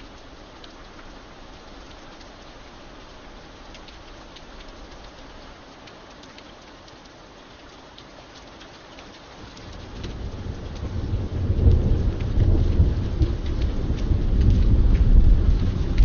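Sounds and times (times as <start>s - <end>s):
raindrops ticking: 0.0s - 16.0s
steady rain: 0.0s - 16.0s
thunder rumbling: 9.4s - 16.0s.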